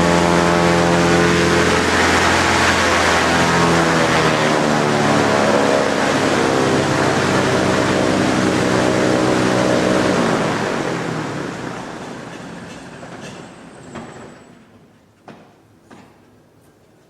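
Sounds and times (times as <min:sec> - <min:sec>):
quad engines revving: 0:00.0 - 0:12.3.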